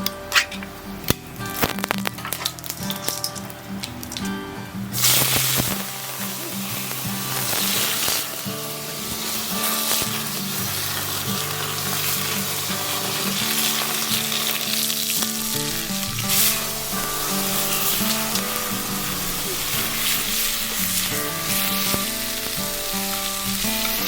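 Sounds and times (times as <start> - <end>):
pasta sizzling in a frying pan: 0.3 - 24.0.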